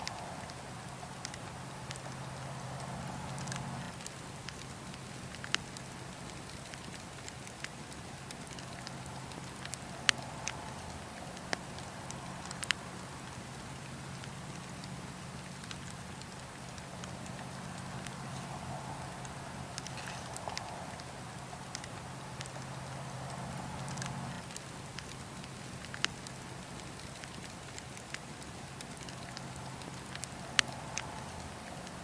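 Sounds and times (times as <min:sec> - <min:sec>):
fire crackling pops: 0:00.0 - 0:32.0
wood fire burning: 0:00.0 - 0:32.0.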